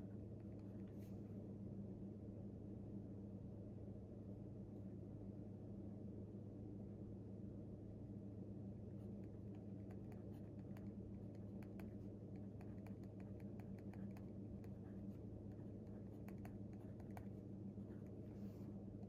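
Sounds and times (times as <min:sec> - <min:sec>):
steady low hum: 0:00.0 - 0:19.0
light clicks and taps: 0:09.2 - 0:14.3.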